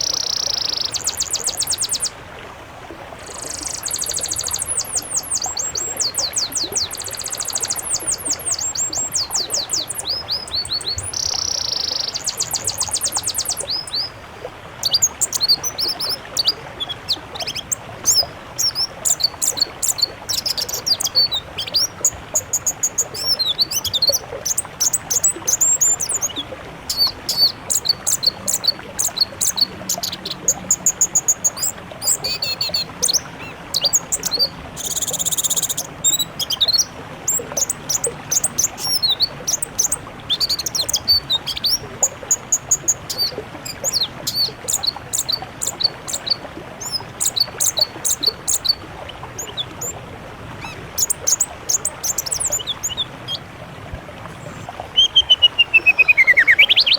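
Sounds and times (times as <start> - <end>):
songbirds chirping and trilling: 0.0 - 2.2, 3.2 - 14.2, 14.8 - 53.5, 54.2 - 56.9.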